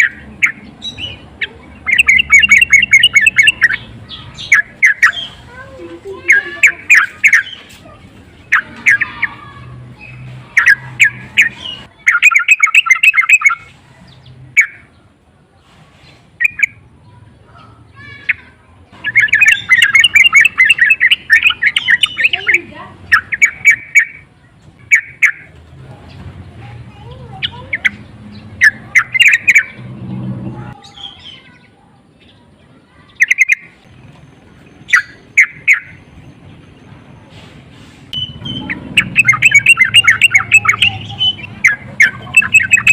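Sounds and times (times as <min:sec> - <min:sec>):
bird singing bubbly chirps: 0:00.0 - 0:05.4, 0:10.0 - 0:13.7, 0:19.0 - 0:25.5, 0:27.4 - 0:29.8, 0:33.2 - 0:33.8, 0:34.4 - 0:36.4, 0:38.2 - 0:42.9.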